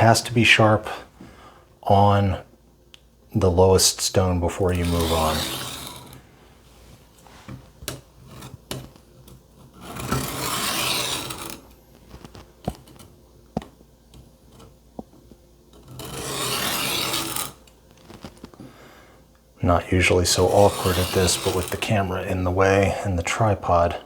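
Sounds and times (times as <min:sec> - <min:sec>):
knife rasping on sharpening stone: 0:10.2 - 0:11.6, 0:16.0 - 0:17.6, 0:20.4 - 0:21.8.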